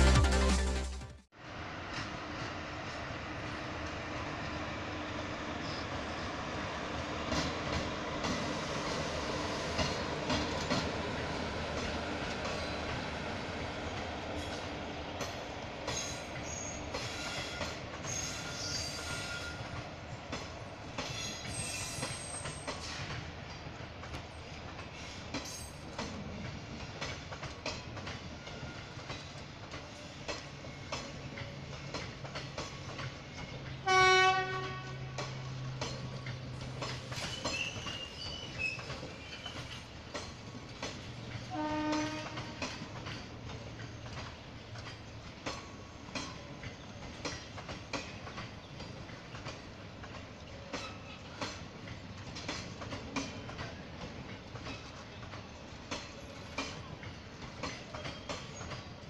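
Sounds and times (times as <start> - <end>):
wheels clicking over rail joints: 7.1 - 59.0
high wheel squeals: 16.0 - 19.7, 21.1 - 23.0, 37.2 - 39.8
train horn: 33.8 - 35.3, 41.5 - 42.6.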